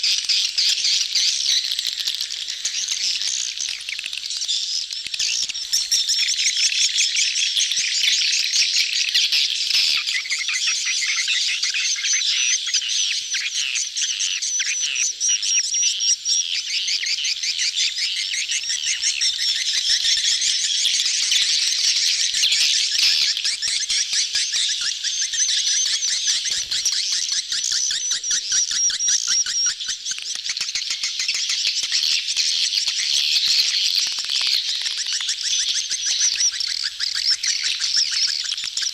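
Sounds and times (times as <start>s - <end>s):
swiftlets twittering and chirping: 0.0s - 38.9s.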